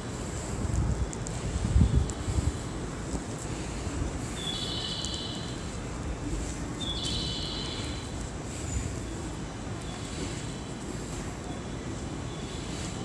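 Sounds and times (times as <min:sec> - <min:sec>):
stationary train rumbling: 0:00.0 - 0:04.9.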